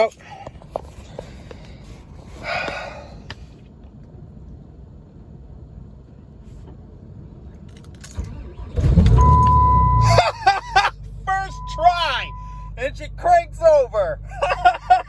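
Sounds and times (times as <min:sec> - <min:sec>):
low background rumble: 0:00.0 - 0:15.0
diesel engine cranking: 0:07.5 - 0:15.0.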